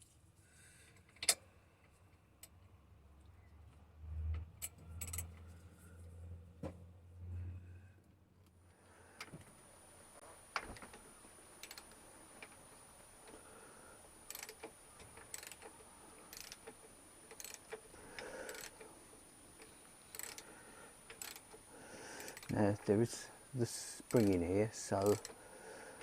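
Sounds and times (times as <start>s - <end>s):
ratchet wrench clicking: 4.6s - 5.3s, 11.6s - 12.0s, 14.3s - 18.9s, 20.1s - 20.5s, 21.1s - 21.6s, 22.2s - 22.5s, 24.0s - 25.4s.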